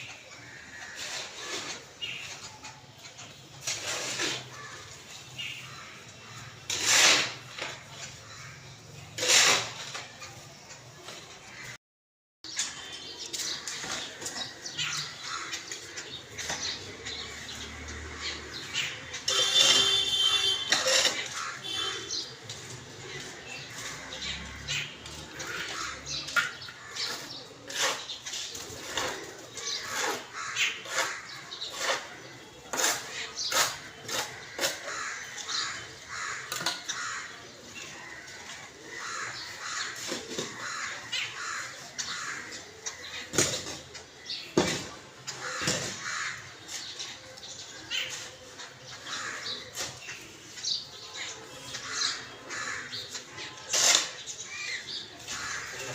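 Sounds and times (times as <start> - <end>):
crows cawing: 0.3 - 1.7, 4.4 - 5.0, 13.7 - 16.2, 19.3 - 22.3, 23.1 - 27.4, 29.1 - 31.9, 33.7 - 43.4, 45.3 - 46.8, 48.9 - 50.1, 51.8 - 53.9, 54.5 - 55.9.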